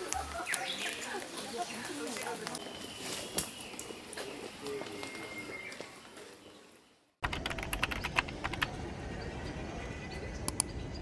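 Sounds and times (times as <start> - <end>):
sharp clicks: 7.2 - 8.7, 10.5 - 10.7.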